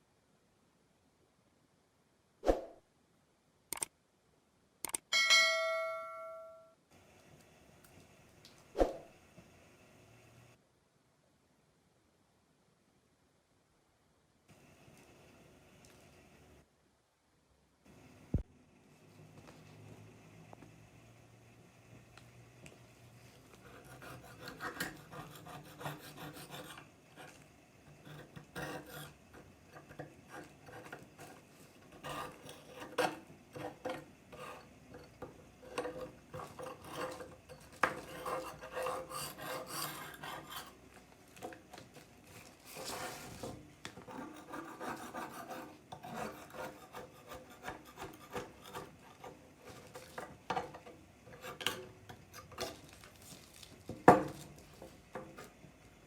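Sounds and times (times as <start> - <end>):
scraping rusty steel blade: 27.9 - 40.8, 44.0 - 52.8.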